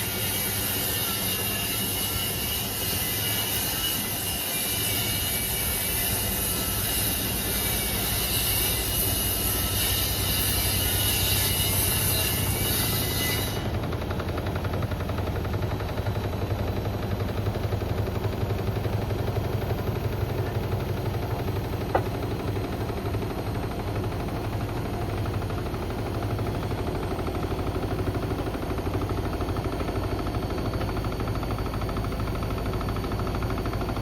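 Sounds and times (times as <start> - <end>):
washing machine low hum: 13.6 - 34.0.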